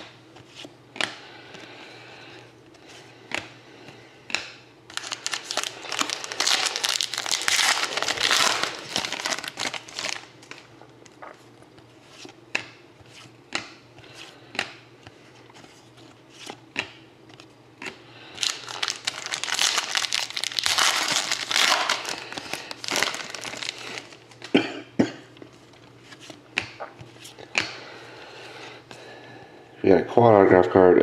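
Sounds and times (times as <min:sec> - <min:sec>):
wrapper crinkling and tearing: 0:04.9 - 0:10.7, 0:18.3 - 0:24.5.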